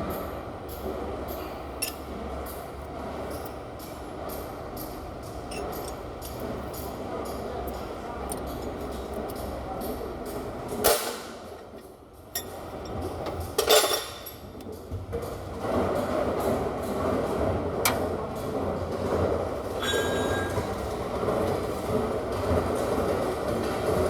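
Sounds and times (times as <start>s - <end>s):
machine running steadily: 0.0s - 24.0s
light metal clinks: 5.5s - 9.5s.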